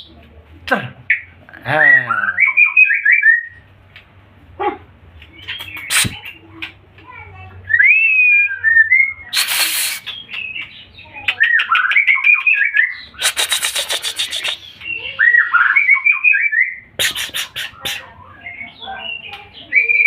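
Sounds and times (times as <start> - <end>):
bird singing whistled phrases: 1.8 - 3.6, 7.6 - 20.0
harsh rattling bird calls: 5.3 - 20.0.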